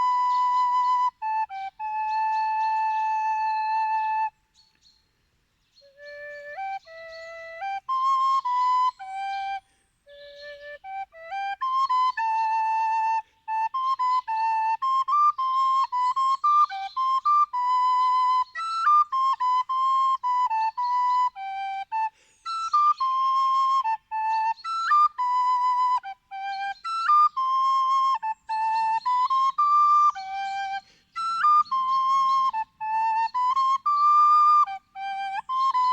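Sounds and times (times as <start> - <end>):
solo wind instrument melody: 0.0 - 4.8, 5.8 - 35.9.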